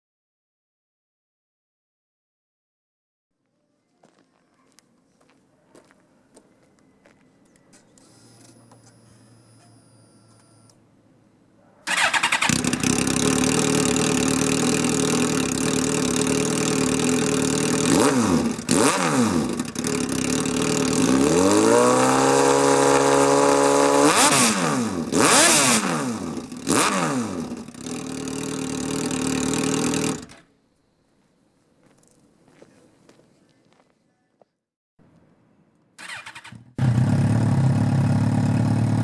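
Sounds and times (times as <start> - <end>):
motorcycle engine idling and revving: 11.9 - 30.5, 36.0 - 39.0.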